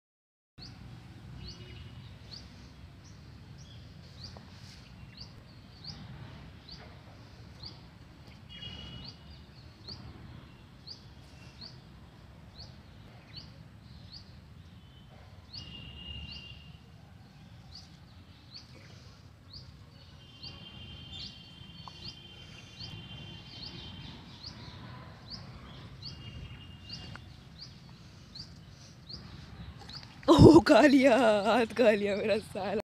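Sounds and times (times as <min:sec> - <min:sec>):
low rumble of wind: 0:05.3 - 0:08.3.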